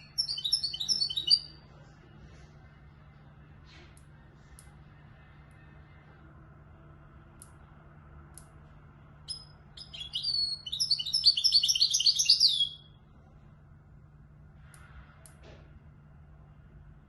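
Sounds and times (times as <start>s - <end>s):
bird twittering song: 0.0s - 1.6s, 9.3s - 13.0s
faint low hum: 0.0s - 17.0s.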